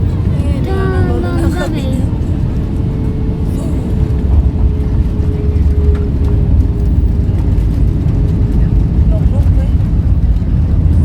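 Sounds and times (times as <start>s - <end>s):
airliner engine and airflow rumble: 0.0s - 11.0s.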